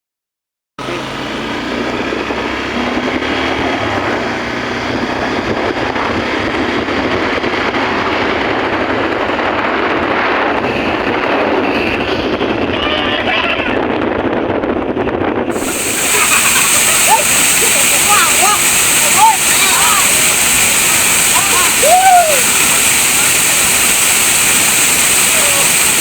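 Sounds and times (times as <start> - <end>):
waterfall roaring: 1.0 - 9.3, 15.5 - 26.0.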